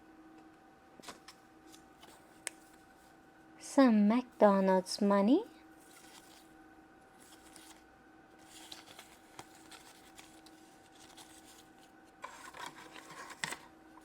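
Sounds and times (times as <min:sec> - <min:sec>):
faint steady hum: 0:00.0 - 0:14.0
hands rustling toy money: 0:08.4 - 0:13.6.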